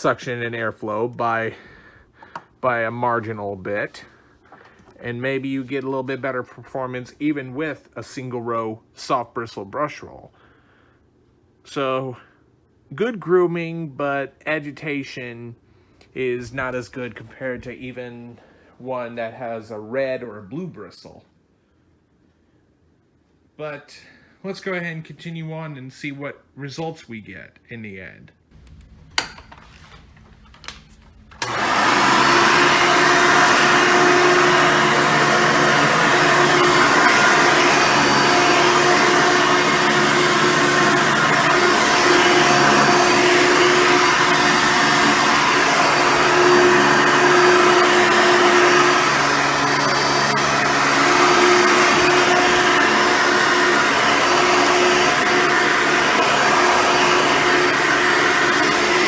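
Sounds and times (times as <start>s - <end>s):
upright vacuum running: 28.5s - 59.0s.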